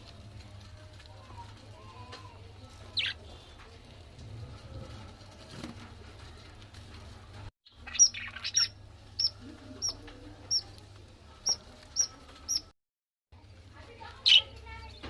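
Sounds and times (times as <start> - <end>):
budgerigars chirping: 3.0 - 3.2, 7.7 - 10.7, 11.4 - 12.7.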